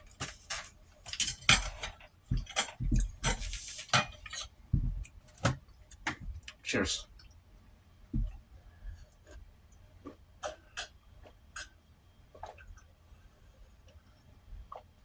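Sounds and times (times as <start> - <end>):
low thump: 8.2 - 8.4.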